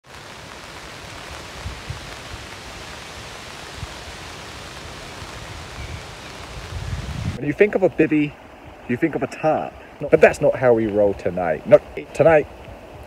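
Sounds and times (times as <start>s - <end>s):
rain falling on foliage: 0.0s - 13.0s.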